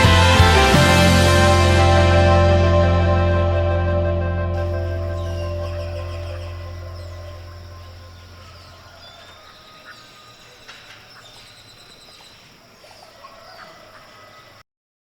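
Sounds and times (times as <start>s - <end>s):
background music: 0.0s - 8.5s
birds chirping: 4.6s - 14.6s
faint outdoor ambience: 4.6s - 14.6s.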